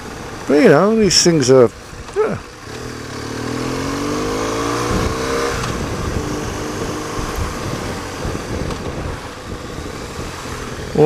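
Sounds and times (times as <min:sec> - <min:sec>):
motorcycle engine accelerating: 0:01.8 - 0:11.0
wind rush: 0:03.4 - 0:11.0.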